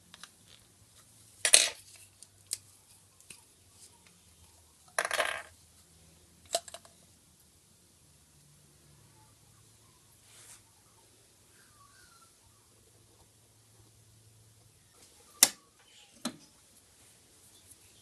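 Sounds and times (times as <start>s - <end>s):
small hard objects rattling: 5.0s - 5.5s.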